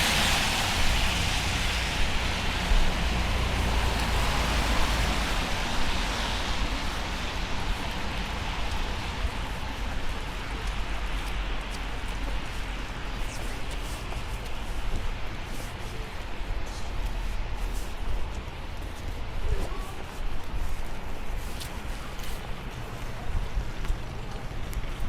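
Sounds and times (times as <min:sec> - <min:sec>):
rain hiss: 0:00.0 - 0:10.2.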